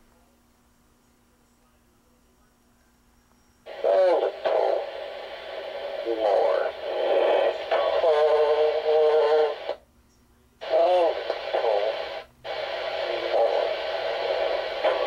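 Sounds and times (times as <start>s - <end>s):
man calling over aircraft radio: 3.7s - 9.8s, 10.6s - 15.0s.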